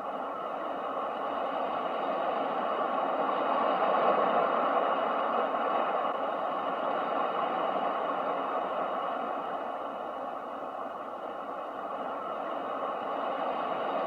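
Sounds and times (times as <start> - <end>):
ocean waves: 0.0 - 14.0.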